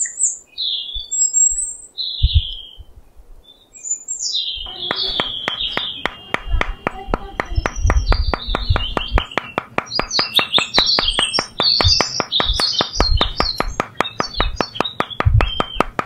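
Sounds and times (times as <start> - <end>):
birds chirping: 0.0 - 2.9, 3.5 - 16.0
hammer tapping posts into sand: 4.7 - 16.0
fast even clicking: 4.9 - 16.0.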